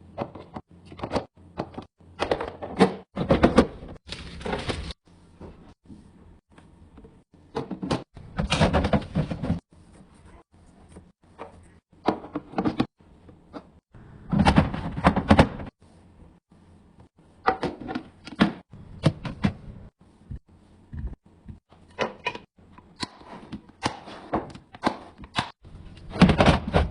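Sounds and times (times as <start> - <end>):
items clicking and knocking: 0.0 - 5.0, 10.9 - 15.7, 17.4 - 19.7.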